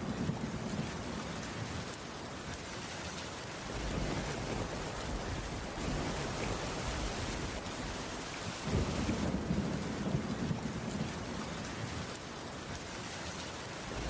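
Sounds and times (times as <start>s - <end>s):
low rumble of thunder: 0.0s - 2.0s, 3.6s - 12.4s, 13.8s - 14.0s
steady rainfall: 0.0s - 14.0s.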